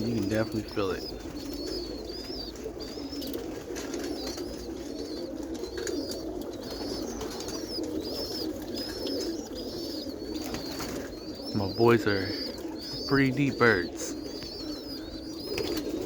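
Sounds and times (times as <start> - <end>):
pigeons cooing: 0.0 - 16.0
small bird chirping: 0.0 - 16.0.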